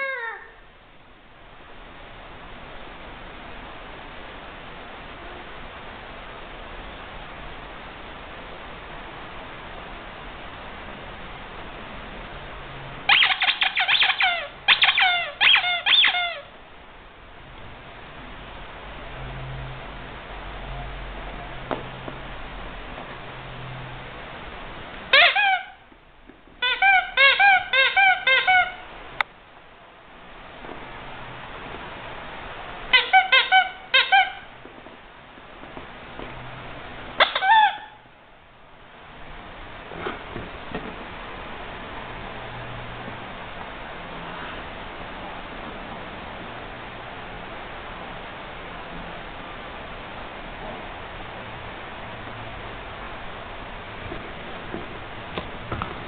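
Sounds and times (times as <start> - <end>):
low steady hiss: 0.0 - 56.0
squeaky rubber toy squeaking: 13.1 - 16.5, 25.1 - 25.8, 26.6 - 28.8, 32.9 - 34.5, 37.2 - 38.0.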